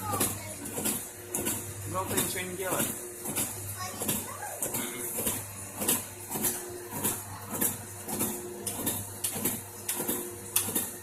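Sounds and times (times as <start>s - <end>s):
kiddie ride clatter: 0.0s - 1.0s.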